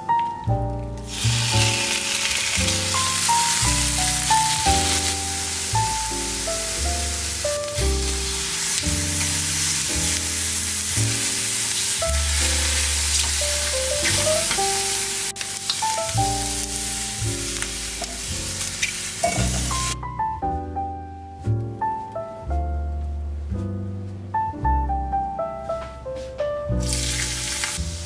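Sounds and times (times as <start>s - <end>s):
background music: 0.0s - 28.0s
squid sizzling in a frying pan: 1.0s - 20.0s, 26.8s - 28.0s.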